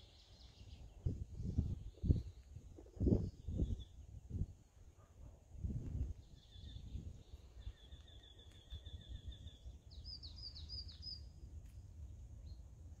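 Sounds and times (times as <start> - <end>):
songbird trilling: 6.2 - 11.3.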